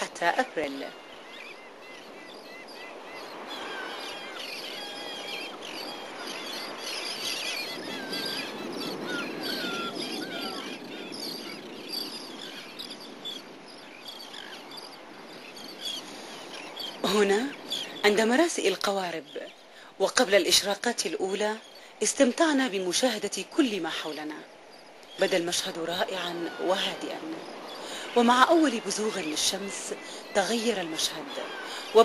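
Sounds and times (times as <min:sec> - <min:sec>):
birds chirping and calling: 0:00.0 - 0:32.0
outdoor background rush: 0:00.0 - 0:32.0.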